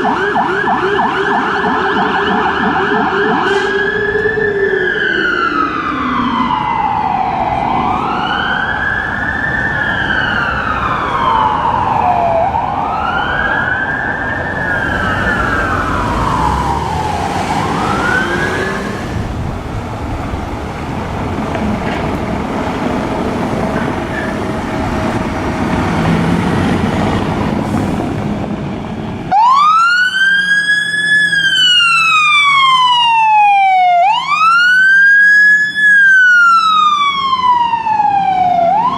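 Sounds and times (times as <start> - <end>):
fire engine wail siren: 0.0 - 38.9.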